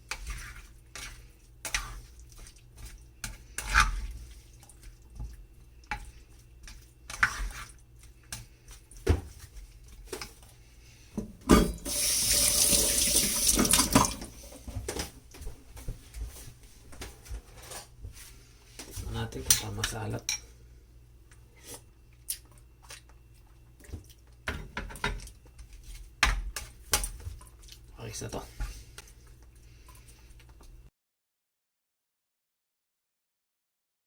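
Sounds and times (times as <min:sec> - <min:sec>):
tap running into sink: 0:11.5 - 0:14.3.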